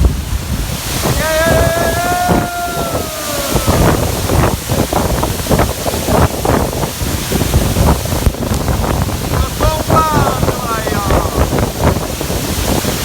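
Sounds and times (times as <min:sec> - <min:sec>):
waterfall roar: 0:00.0 - 0:13.0
wind buffeting microphone: 0:00.0 - 0:13.0
long held call: 0:01.0 - 0:04.4.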